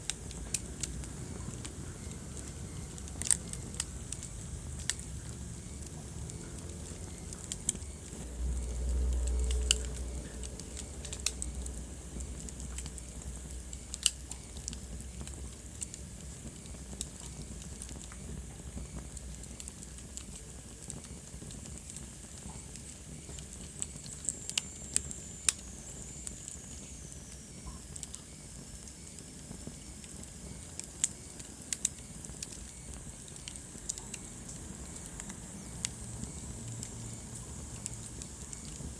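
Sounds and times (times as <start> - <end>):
wood fire crackling and popping: 0.0 - 38.9
low rumble: 0.3 - 13.7.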